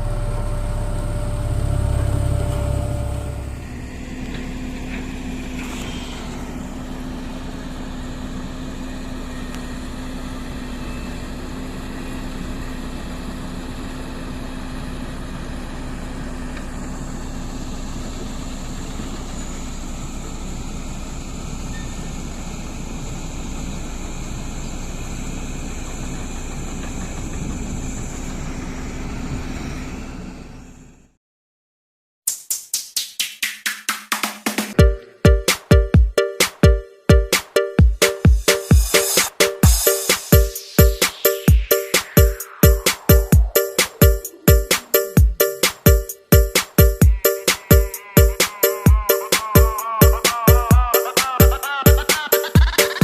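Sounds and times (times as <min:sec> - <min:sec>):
engine humming steadily: 0:00.0 - 0:31.1.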